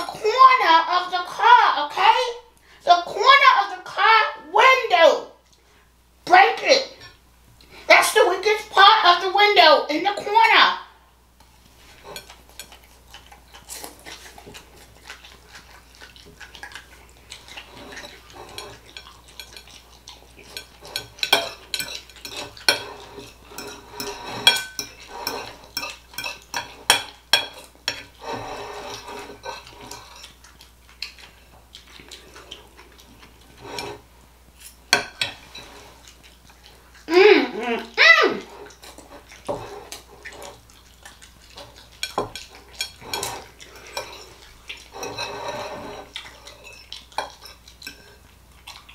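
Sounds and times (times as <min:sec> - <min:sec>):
cutlery clinking on a plate: 0:20.5 - 0:30.3.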